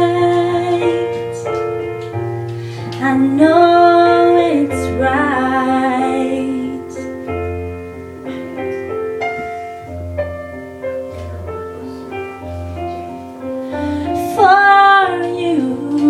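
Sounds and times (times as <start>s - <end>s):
woman singing: 0.0s - 1.6s, 3.0s - 7.2s, 14.0s - 16.0s.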